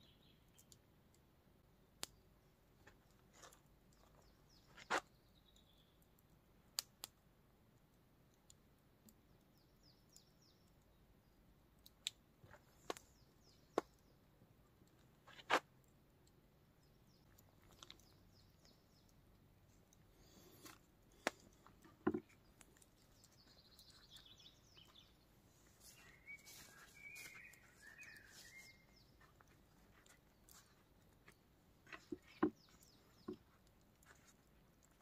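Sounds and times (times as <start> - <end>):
faint bird chirps: 0.0 - 0.8, 22.2 - 34.3
sharp knocks and clicks: 21.2 - 22.4.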